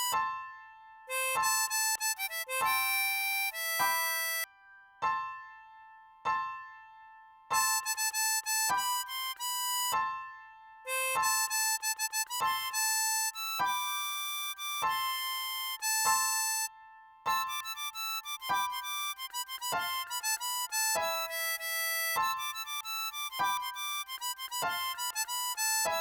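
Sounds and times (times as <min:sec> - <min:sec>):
harmonica melody: 0:01.1 - 0:04.5, 0:07.6 - 0:10.0, 0:10.9 - 0:16.7, 0:17.3 - 0:26.0.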